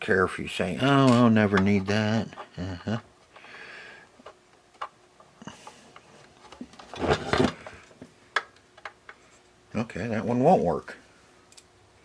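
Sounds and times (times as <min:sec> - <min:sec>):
small parts clicking and tapping: 0:07.8 - 0:09.2.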